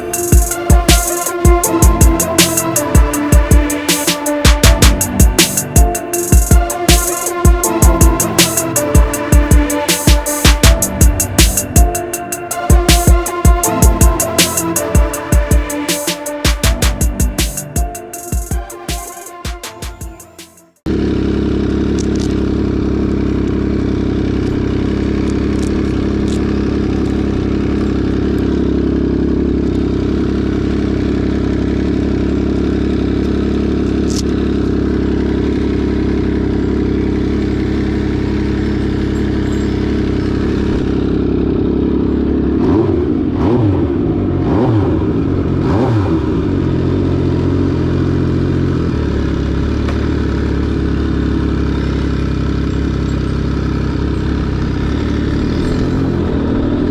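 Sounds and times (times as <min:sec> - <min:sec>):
motorcycle engine idling and revving: 0:00.0 - 0:56.9.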